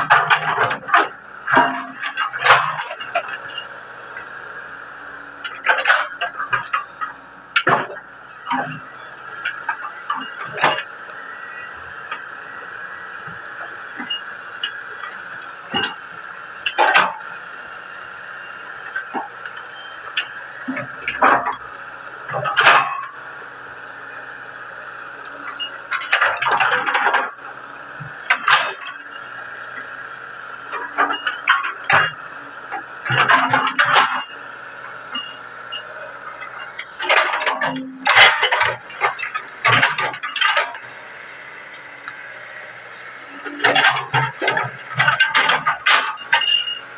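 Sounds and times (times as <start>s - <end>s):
excavator engine whine: 0.0s - 46.9s
metallic clanks and knocks: 0.1s - 3.6s, 5.4s - 17.3s, 22.3s - 23.1s, 25.2s - 27.4s, 28.0s - 29.9s, 30.7s - 34.4s, 35.0s - 40.9s, 43.2s - 46.9s.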